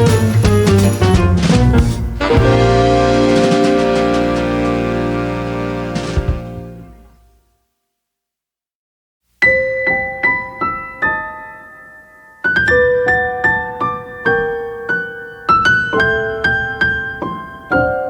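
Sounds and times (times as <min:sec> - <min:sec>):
slow gentle piano: 0:00.0 - 0:07.1, 0:09.4 - 0:18.0.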